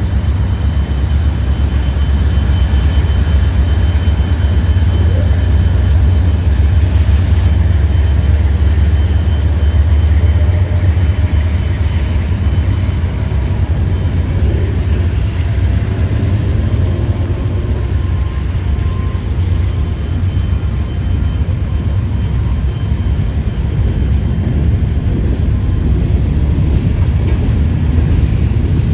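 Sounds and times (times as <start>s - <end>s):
freight train rumbling past: 0.0s - 28.9s
rain hissing: 5.0s - 7.9s
brief hiss: 6.8s - 7.6s.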